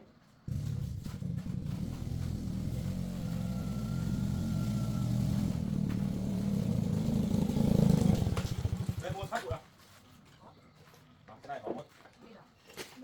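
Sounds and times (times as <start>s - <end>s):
engine running: 0.5s - 9.4s.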